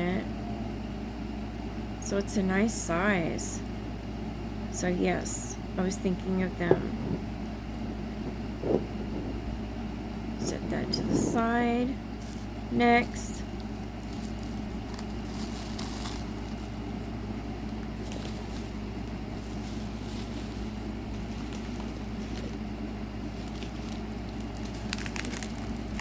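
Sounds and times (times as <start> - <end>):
low hum: 1.7 - 24.0
packaging crackling: 13.4 - 26.0.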